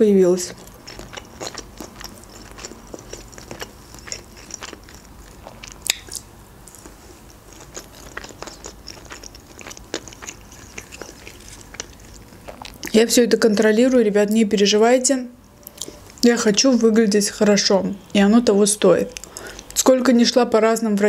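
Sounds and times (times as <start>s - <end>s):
person chewing food: 0.4s - 13.0s, 15.6s - 16.2s, 19.1s - 19.8s.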